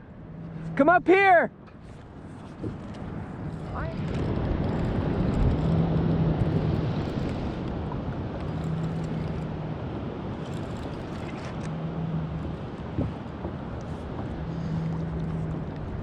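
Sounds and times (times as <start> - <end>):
wind noise on microphone: 2.0 - 16.0.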